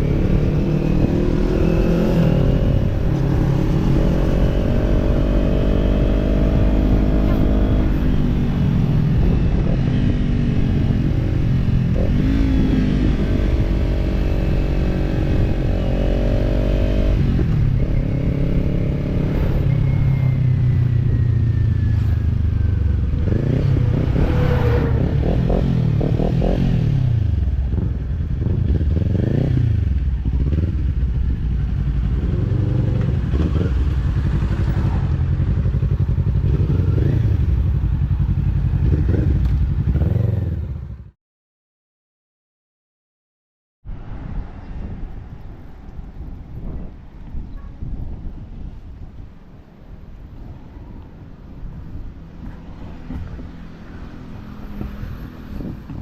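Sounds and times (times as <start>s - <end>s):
motorcycle engine revving: 0.0s - 41.2s.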